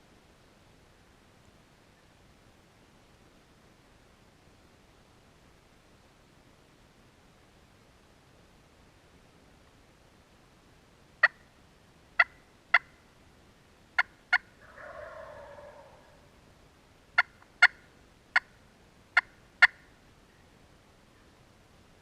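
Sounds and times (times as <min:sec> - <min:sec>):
turkey clucks: 0:12.2 - 0:12.9, 0:14.0 - 0:16.3, 0:17.2 - 0:18.6, 0:19.2 - 0:19.8
turkey gobbling: 0:12.2 - 0:12.9, 0:14.0 - 0:16.3, 0:17.2 - 0:17.8, 0:19.2 - 0:19.8.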